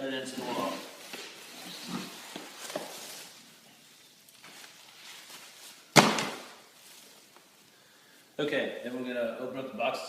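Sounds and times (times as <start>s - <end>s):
loud sharp knock: 6.0s - 6.5s.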